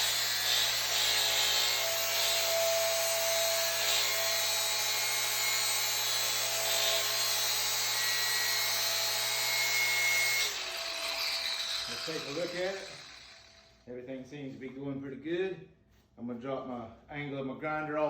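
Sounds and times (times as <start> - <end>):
angle grinder grinding metal: 0.0 - 13.9.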